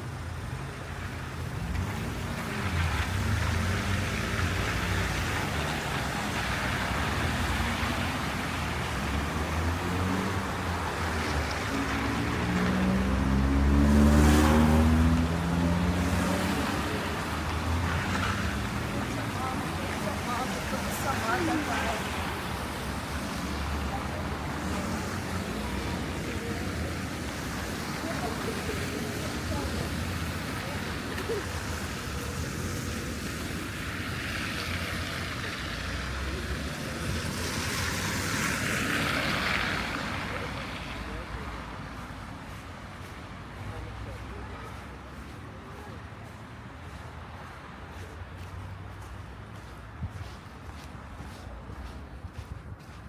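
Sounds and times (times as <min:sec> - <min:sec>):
city traffic rumble: 0:00.0 - 0:53.0.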